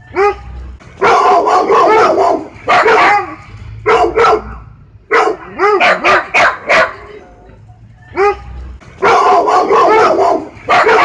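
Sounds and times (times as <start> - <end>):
dog barking: 1.0 - 7.1, 9.0 - 11.0.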